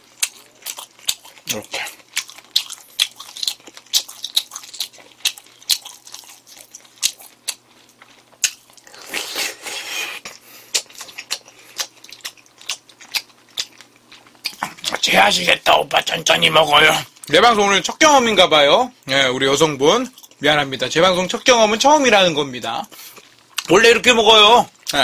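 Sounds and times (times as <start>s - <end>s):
crunchy chewing: 0.0s - 15.1s.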